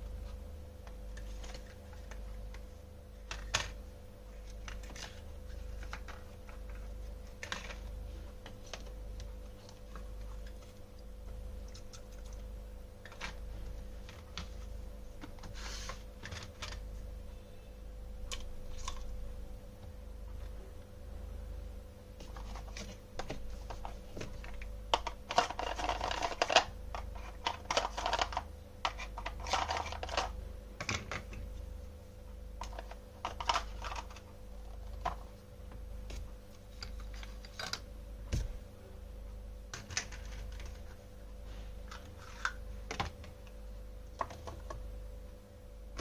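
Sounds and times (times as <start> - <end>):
steady low hum: 0.0 - 46.0
crackly rustling: 22.2 - 30.4.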